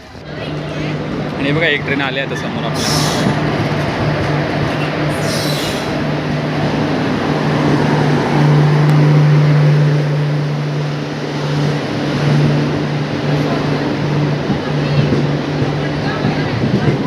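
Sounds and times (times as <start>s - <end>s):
train pulling in: 0.0s - 17.0s.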